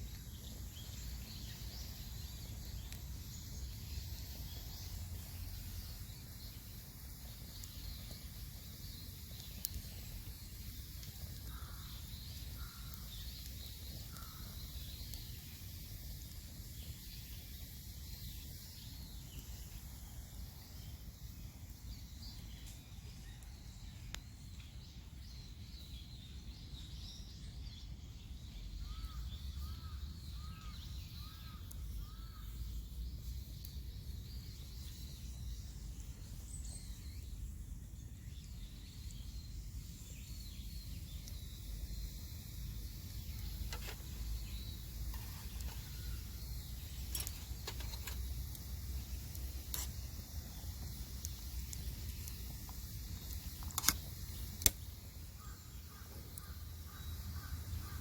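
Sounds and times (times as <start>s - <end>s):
sharp snaps: 50.8s - 55.0s.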